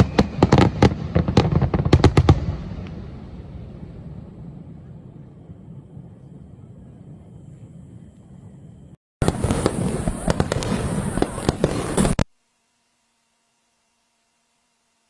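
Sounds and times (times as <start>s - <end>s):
fireworks bangs and crackles: 0.0s - 7.4s, 9.2s - 12.3s
distant low rumble: 1.1s - 12.2s.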